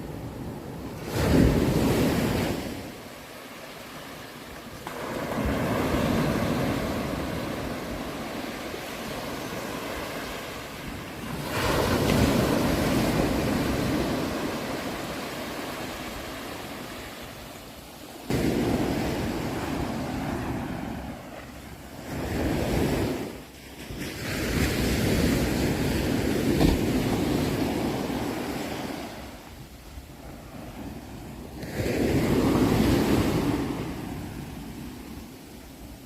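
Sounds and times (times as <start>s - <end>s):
sea waves breaking: 0.0s - 36.0s.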